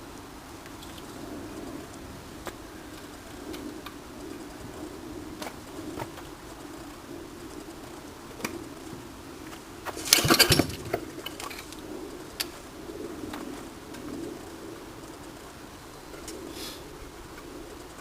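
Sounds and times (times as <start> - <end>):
clattering: 9.9 - 11.7.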